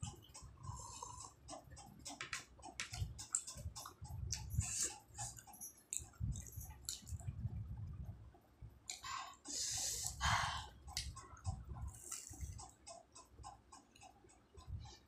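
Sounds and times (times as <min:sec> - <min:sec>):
biting and chewing: 0:00.0 - 0:07.4, 0:10.8 - 0:14.7.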